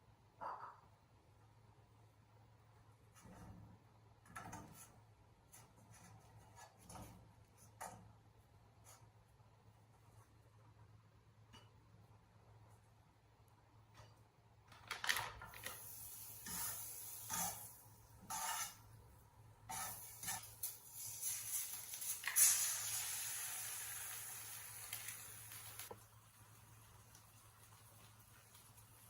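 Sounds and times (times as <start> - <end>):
kitchen scrapes and rustles: 15.6 - 18.8, 19.7 - 23.1
food sizzling in a hot pan: 15.7 - 18.8, 19.7 - 29.0.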